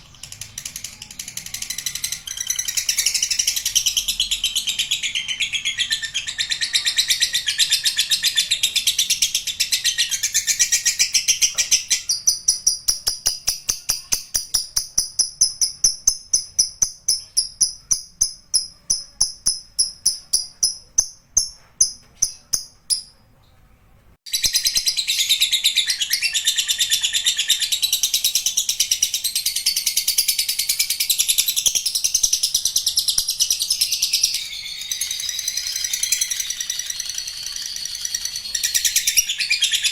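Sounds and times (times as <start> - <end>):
lovebird trilling chatter: 33.9 - 39.9.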